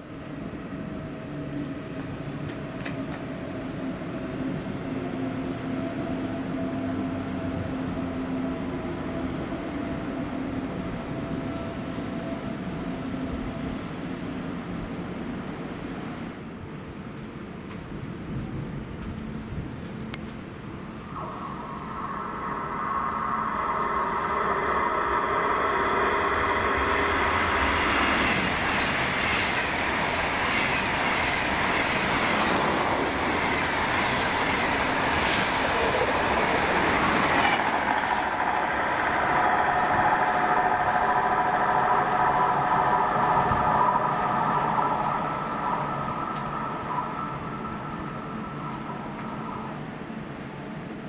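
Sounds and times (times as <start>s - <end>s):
high-speed train passing: 0.0s - 51.0s
steady whine: 20.6s - 50.9s.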